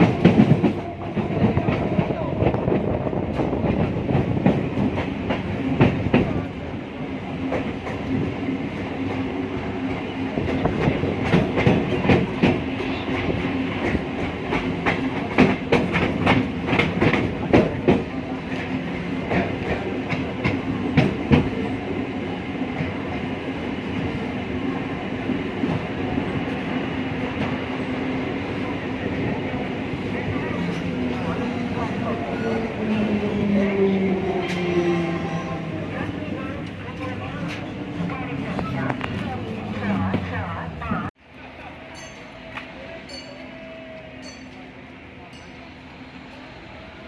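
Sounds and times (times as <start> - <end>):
train running hum: 0.0 - 47.0
train wheels clattering over rail joints: 13.8 - 18.7.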